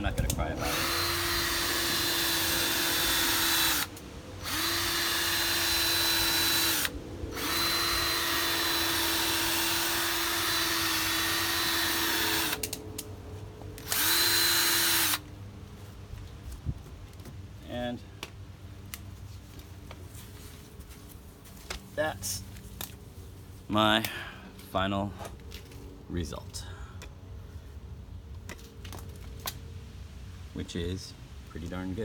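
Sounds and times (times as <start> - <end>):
cordless drill polishing: 0.6 - 12.6, 13.8 - 15.2.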